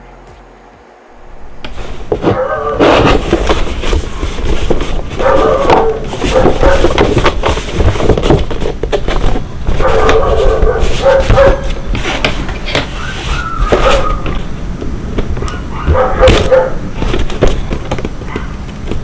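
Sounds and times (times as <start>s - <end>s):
rustling: 1.2s - 14.6s, 15.2s - 19.0s
dog whining and yipping: 12.9s - 14.4s, 15.4s - 16.8s.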